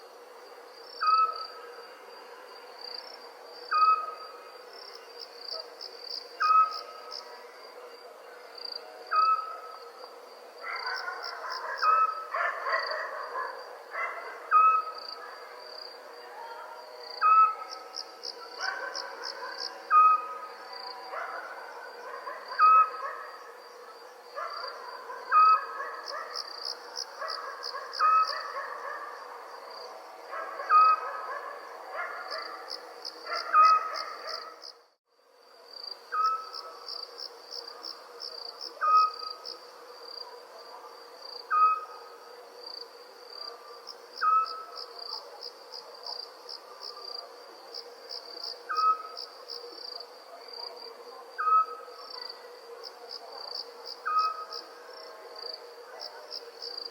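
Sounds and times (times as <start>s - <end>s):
crickets trilling: 0.0s - 56.9s
owl hooting: 6.4s - 6.9s, 9.1s - 9.7s, 10.7s - 15.0s, 17.2s - 17.7s, 18.8s - 20.5s, 22.5s - 23.2s, 25.3s - 25.8s, 27.3s - 28.6s, 30.6s - 31.4s, 36.1s - 36.7s, 38.8s - 39.3s, 41.5s - 42.1s, 44.2s - 44.8s, 48.6s - 49.3s, 51.4s - 52.1s, 54.0s - 54.6s.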